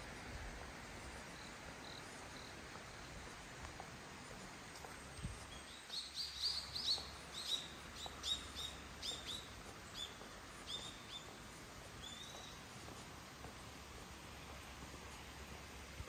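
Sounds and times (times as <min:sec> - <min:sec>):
small bird chirping: 0:05.5 - 0:11.4, 0:12.0 - 0:12.6.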